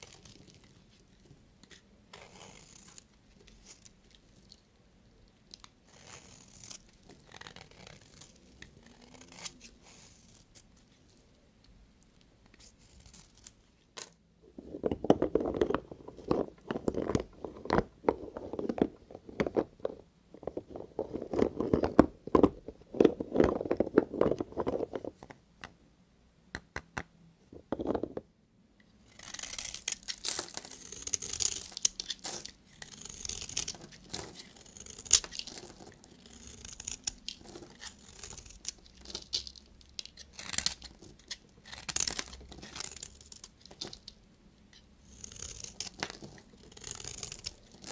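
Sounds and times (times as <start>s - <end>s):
knife cutting through soap: 29.1s - 39.4s, 40.0s - 44.0s, 44.8s - 47.9s.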